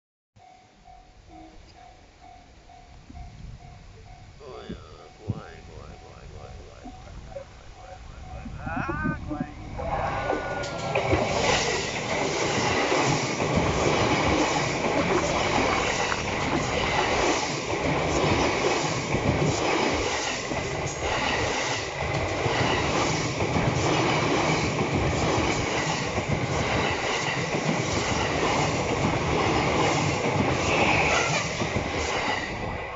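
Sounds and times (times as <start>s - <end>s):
high-pitched tone: 0.4s - 11.0s.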